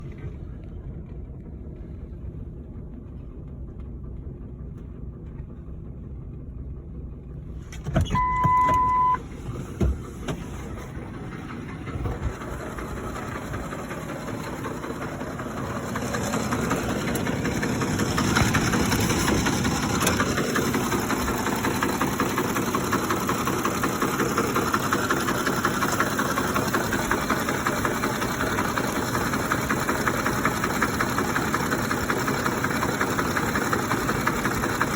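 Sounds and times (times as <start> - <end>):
engine idling rough with rattle: 0.0 - 34.9
steady electronic beep: 8.1 - 9.2.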